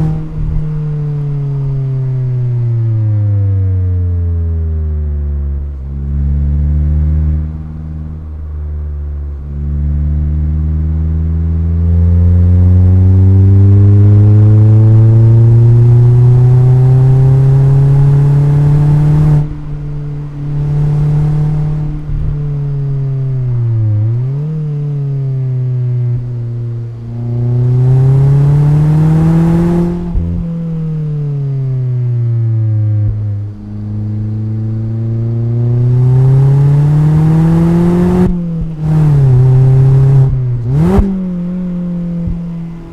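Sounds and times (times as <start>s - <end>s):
car engine accelerating hard: 0.0s - 42.9s.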